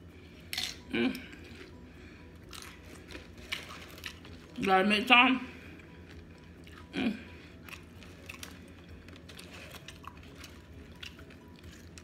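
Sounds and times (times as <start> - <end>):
crunching tortilla chips: 2.4 - 5.1, 6.0 - 12.0.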